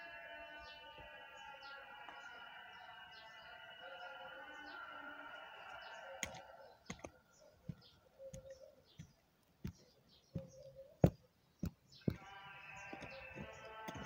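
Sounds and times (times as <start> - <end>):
background music: 0.0 - 7.4, 12.0 - 14.0.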